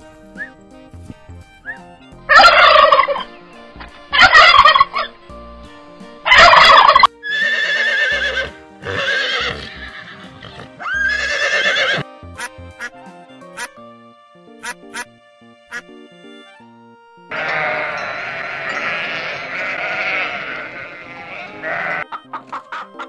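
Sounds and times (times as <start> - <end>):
faint background music: 0.0 - 23.0
turkey gobbling: 1.7 - 3.4, 4.1 - 5.1, 6.2 - 8.0, 20.2 - 23.0.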